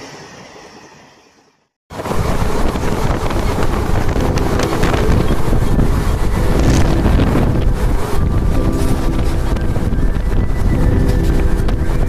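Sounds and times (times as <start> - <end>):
train rumbling: 1.9 - 12.0
wind buffeting microphone: 1.9 - 12.0.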